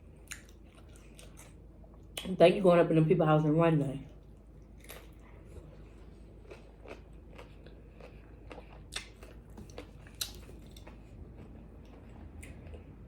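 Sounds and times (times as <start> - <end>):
crunchy chewing: 0.2 - 1.6, 4.4 - 13.0.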